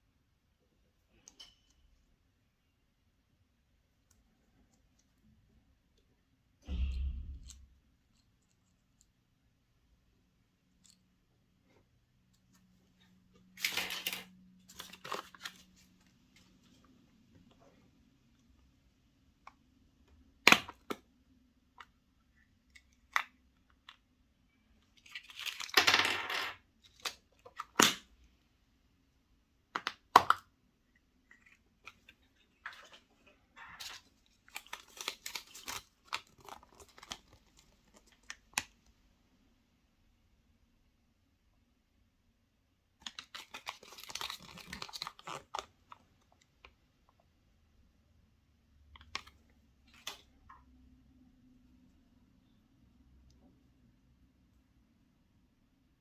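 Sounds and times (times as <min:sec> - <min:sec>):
wrapper rustling and tearing: 0:33.8 - 0:38.2, 0:43.1 - 0:45.7.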